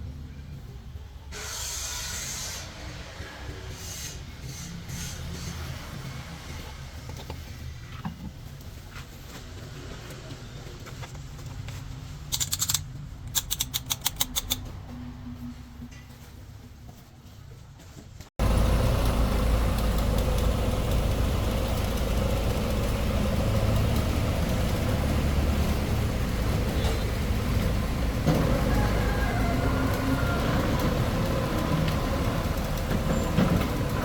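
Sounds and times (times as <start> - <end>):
truck engine running: 18.4 - 34.0.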